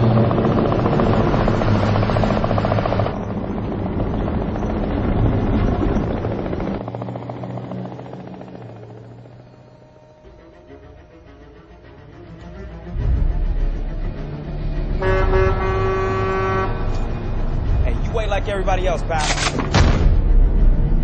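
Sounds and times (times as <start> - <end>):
helicopter rotor chopping: 0.0 - 11.8
low hum: 0.0 - 21.0.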